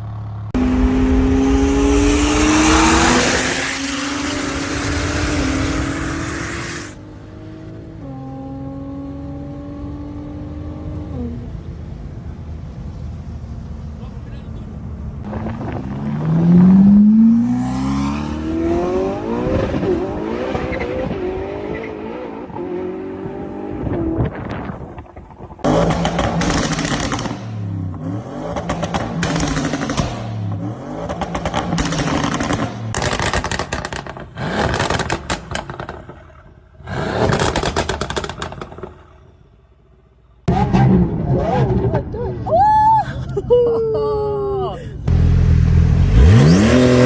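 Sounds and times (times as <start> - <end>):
car exhaust accelerating: 0.0 - 10.9, 22.9 - 42.0, 45.1 - 47.0
exhaust cracks and pops: 31.1 - 39.4.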